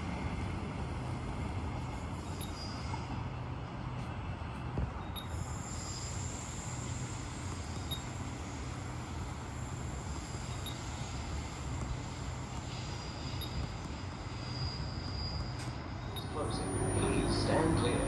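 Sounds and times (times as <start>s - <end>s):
electric train rumble and hiss: 0.0s - 18.0s
faint high whine: 5.0s - 18.0s.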